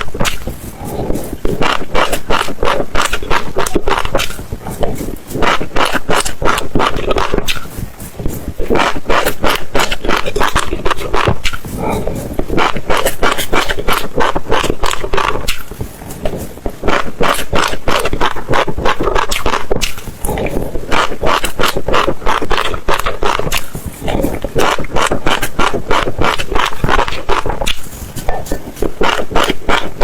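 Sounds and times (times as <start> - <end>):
seeds crunching while chewing: 0.0 - 30.0.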